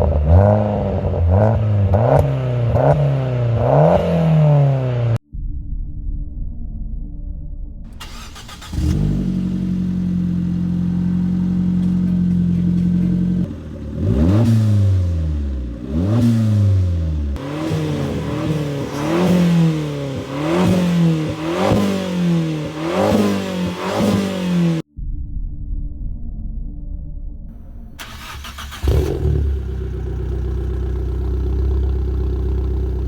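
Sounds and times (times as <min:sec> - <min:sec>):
car engine revving: 0:07.9 - 0:24.9, 0:27.5 - 0:33.0
quick throttle blips: 0:08.0 - 0:09.2, 0:27.6 - 0:30.0
car engine running: 0:08.0 - 0:24.8, 0:27.5 - 0:33.0.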